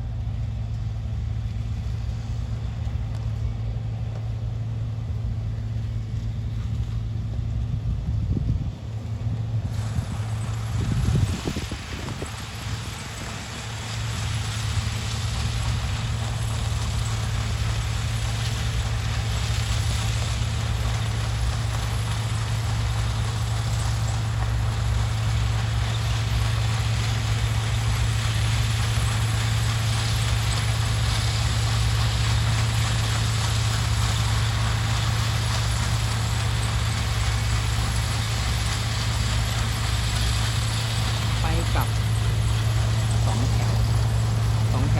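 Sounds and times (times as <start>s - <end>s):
heavy diesel engine humming: 0.0s - 44.9s.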